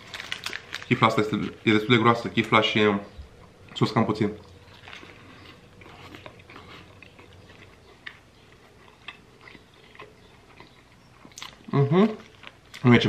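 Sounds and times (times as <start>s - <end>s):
person chewing: 4.4s - 12.9s.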